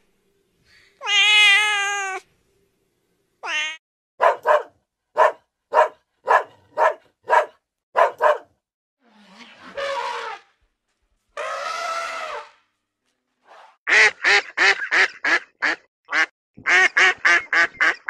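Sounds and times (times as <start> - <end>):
cat meowing: 1.0 - 2.2, 3.4 - 3.8
dog barking: 4.2 - 8.6.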